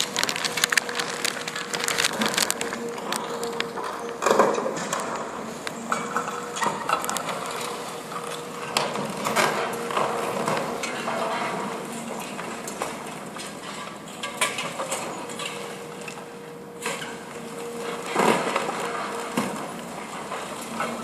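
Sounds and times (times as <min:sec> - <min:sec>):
loud crunch: 0:00.0 - 0:04.8
machine hum: 0:00.0 - 0:13.7
concrete cracking and clattering: 0:00.0 - 0:15.6.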